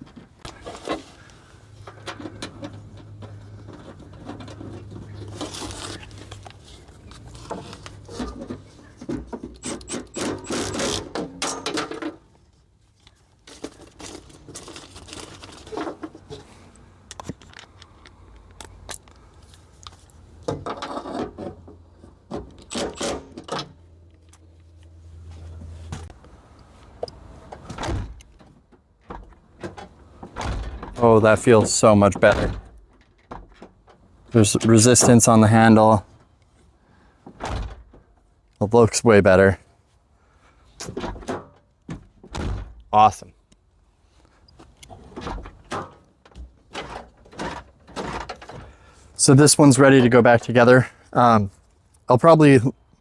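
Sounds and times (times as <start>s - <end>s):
door handle clicks and rattles: 22.3s - 23.8s.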